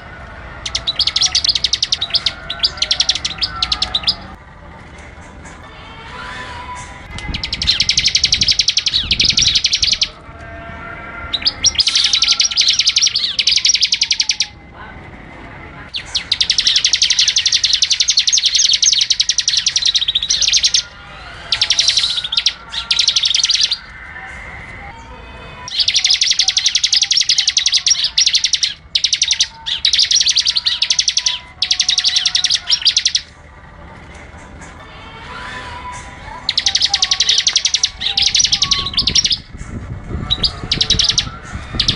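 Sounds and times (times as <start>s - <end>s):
bird singing rapid chattering notes: 0.6s - 4.4s, 7.2s - 10.2s, 11.3s - 14.6s, 15.9s - 23.9s, 25.7s - 33.3s, 36.5s - 39.6s, 40.2s - 41.9s.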